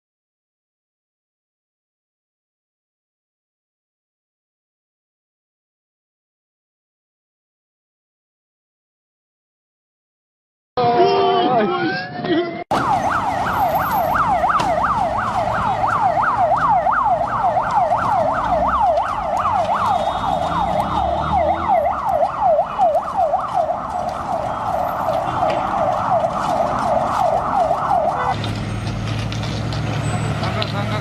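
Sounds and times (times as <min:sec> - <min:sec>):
siren yelping: 0:12.7 - 0:28.4.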